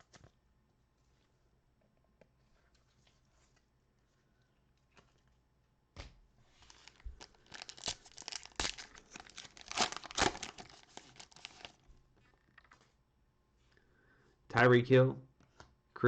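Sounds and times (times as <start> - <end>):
foil wrapper tearing and crinkling: 6.7 - 11.8.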